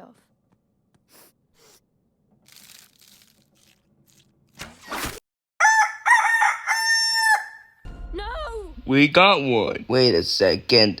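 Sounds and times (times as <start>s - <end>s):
rooster crowing: 5.6s - 7.8s.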